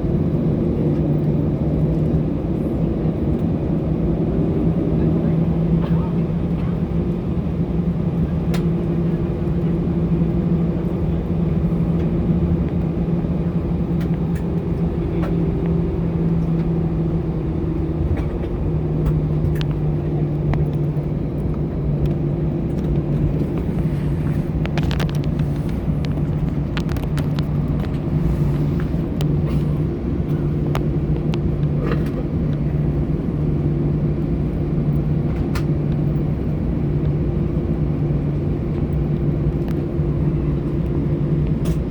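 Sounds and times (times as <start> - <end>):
aircraft cabin hum and rumble: 0.0 - 41.9
light clicks and rattles: 20.5 - 28.1.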